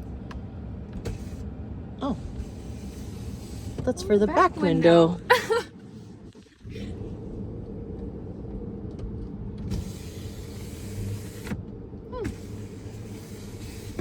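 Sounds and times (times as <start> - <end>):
electric window motor humming: 9.6 - 14.0
hiss: 9.7 - 11.6, 12.3 - 14.0.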